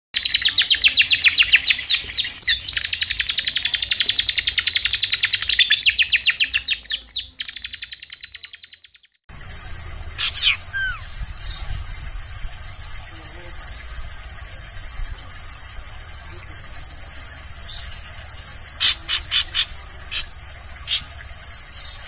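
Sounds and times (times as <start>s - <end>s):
songbird rapid trill: 0.2s - 14.0s, 17.6s - 22.0s
falling bird call: 10.2s - 11.2s.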